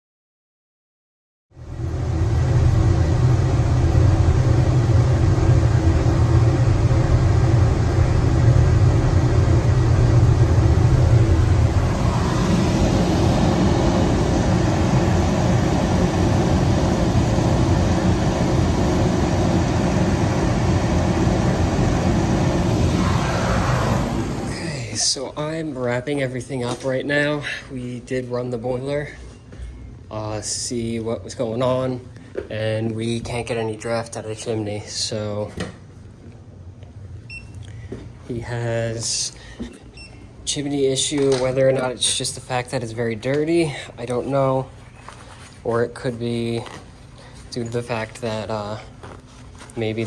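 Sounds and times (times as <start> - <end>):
boiler burner roaring: 1.6 - 25.4.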